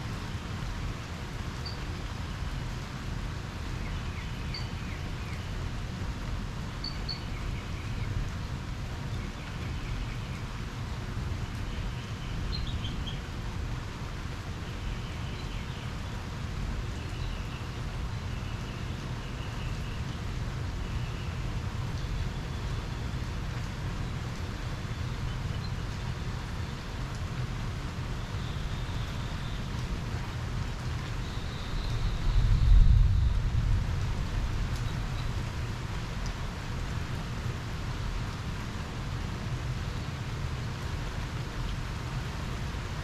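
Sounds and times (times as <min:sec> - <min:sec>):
wind rumbling on microphone: 0:31.6 - 0:37.7.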